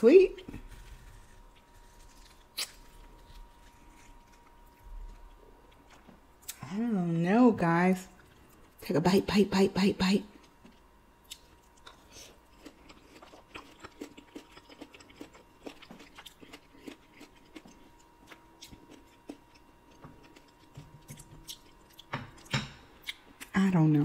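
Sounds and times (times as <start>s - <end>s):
chewing with wet mouth clicks: 10.4s - 23.5s.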